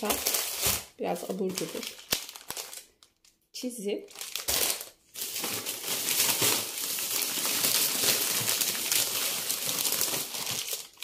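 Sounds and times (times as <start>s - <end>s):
plastic packaging crinkling: 0.0s - 3.4s, 4.0s - 11.0s.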